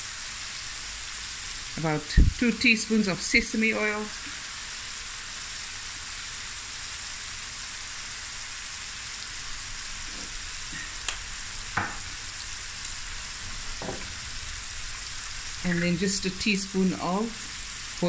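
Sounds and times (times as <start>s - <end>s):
food sizzling in a pan: 0.0s - 18.0s
small knocks: 10.1s - 12.2s, 13.5s - 14.2s.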